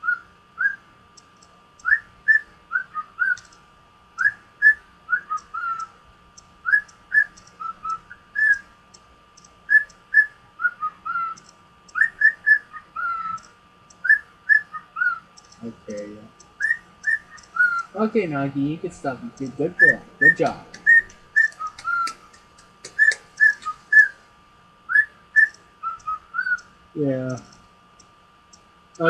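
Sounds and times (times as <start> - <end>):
cockatiel whistling: 0.0 - 0.8, 1.8 - 3.5, 4.2 - 5.9, 6.6 - 8.7, 9.7 - 15.2, 16.6 - 18.0, 19.8 - 22.2, 22.8 - 24.2, 24.9 - 26.7.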